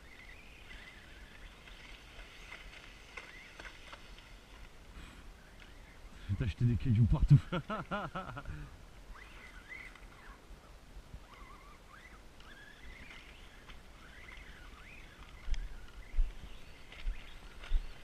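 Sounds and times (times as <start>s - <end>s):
birds chirping and whistling: 0.0s - 4.1s, 9.1s - 10.4s, 11.2s - 18.0s.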